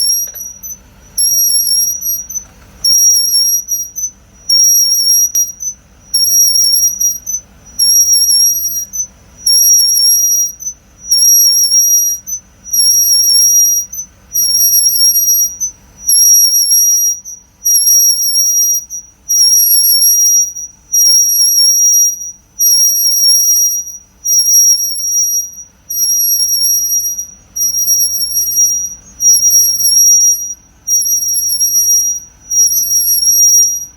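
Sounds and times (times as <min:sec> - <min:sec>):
disc brake squealing: 0:00.0 - 0:33.9
low running hum: 0:00.0 - 0:33.9.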